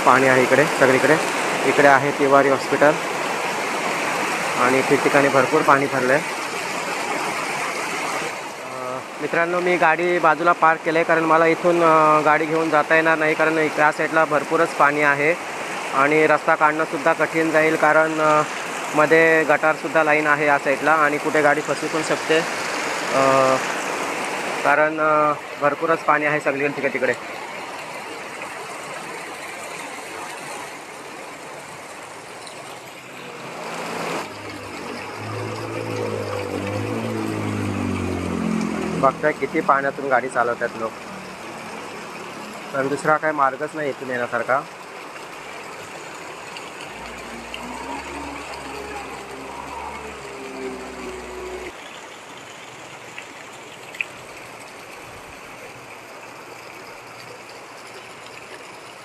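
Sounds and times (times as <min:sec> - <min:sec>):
flowing floodwater: 0:00.0 - 0:59.0
heavy rain: 0:00.0 - 0:59.0
vehicle engine approaching: 0:32.3 - 0:43.2, 0:45.6 - 0:51.8.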